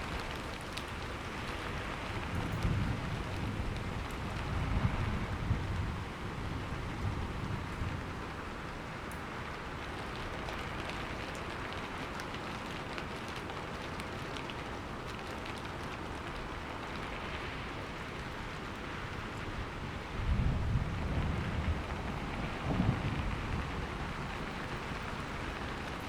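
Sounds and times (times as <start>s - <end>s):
heavy rain falling: 0.0s - 26.0s
thunder rumbling: 19.4s - 26.0s.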